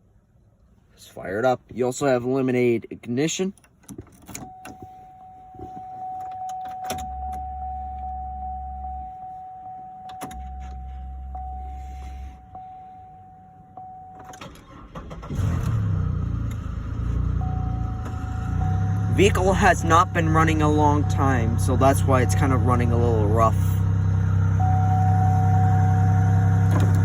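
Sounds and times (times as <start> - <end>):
electronic warning tone: 4.5 - 14.5, 17.4 - 23.7, 24.5 - 27.0
ignition key clicks: 5.6 - 8.3, 10.0 - 11.6
car engine starting and running rough: 14.2 - 27.0
fuel pump humming: 17.3 - 27.0.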